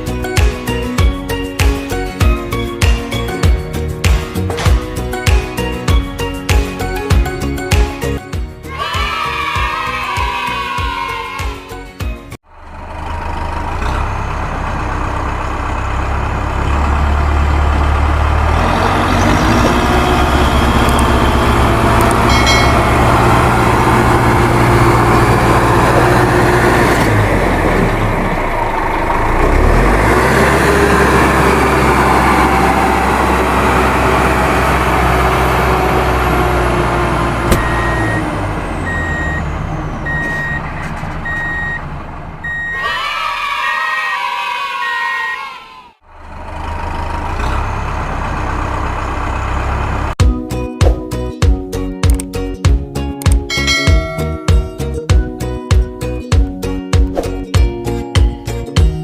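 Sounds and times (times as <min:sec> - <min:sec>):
heavy vehicle engine running: 0:12.4 - 0:43.1, 0:45.9 - 0:50.2
reversing beeps: 0:37.5 - 0:41.8, 0:42.4 - 0:42.9.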